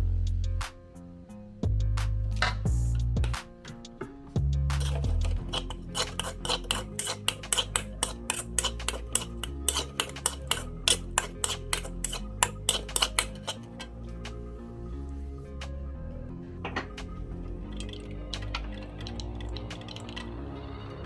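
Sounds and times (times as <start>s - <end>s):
background music: 0.0s - 21.0s
metal utensils clinking on pan: 4.8s - 13.9s.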